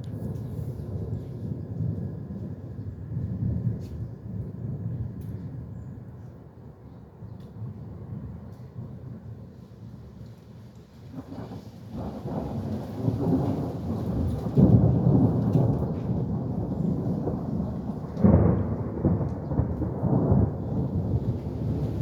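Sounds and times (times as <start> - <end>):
rain falling: 10.6 - 22.0
thunder rumbling: 11.1 - 22.0.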